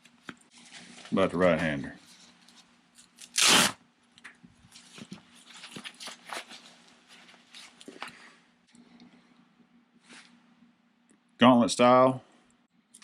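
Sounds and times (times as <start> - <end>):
gloves rustling and scraping: 0.0 - 3.7, 4.6 - 8.6.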